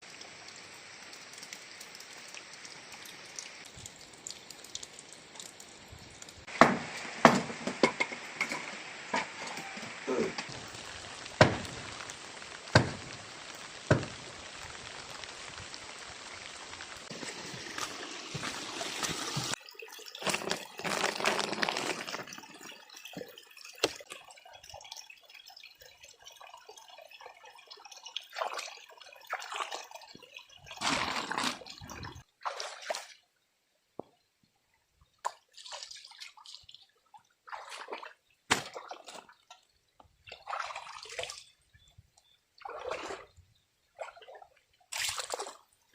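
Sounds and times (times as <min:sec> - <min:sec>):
water dripping and splashing: 0:00.0 - 0:33.3, 0:35.0 - 0:45.9
heavy rain falling: 0:06.5 - 0:19.6.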